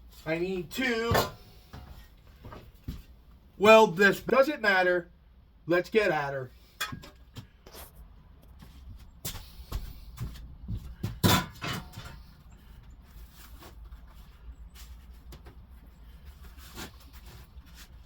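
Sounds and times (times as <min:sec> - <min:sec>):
workshop knocks and clunks: 0:00.9 - 0:03.1, 0:09.3 - 0:12.3.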